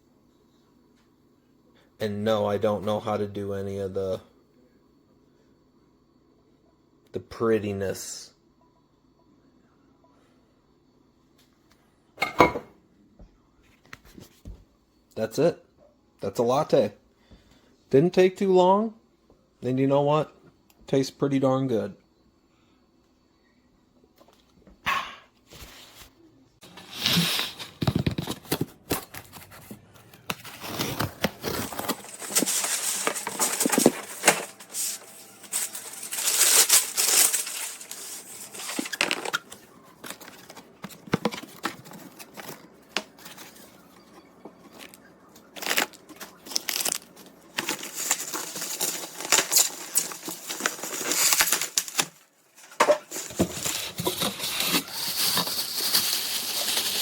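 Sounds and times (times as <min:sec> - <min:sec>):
rustling and crinkling handling: 0:25.4 - 0:57.0.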